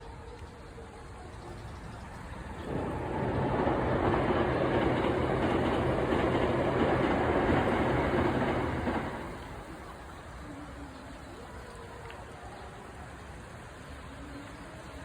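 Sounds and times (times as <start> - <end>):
electric train passing: 1.8 - 10.4
low motor hum: 2.4 - 9.8.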